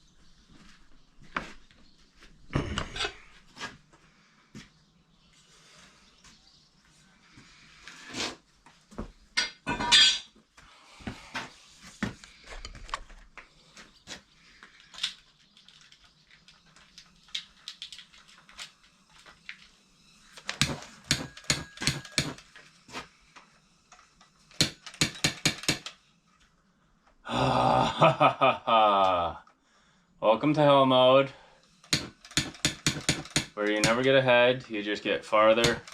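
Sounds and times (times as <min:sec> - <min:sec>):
sharp metal strikes: 0:31.9 - 0:34.0.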